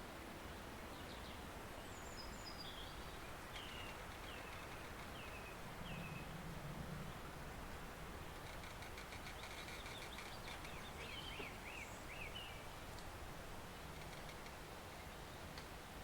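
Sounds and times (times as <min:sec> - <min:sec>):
bird chirping: 0:00.9 - 0:06.3, 0:08.7 - 0:12.6.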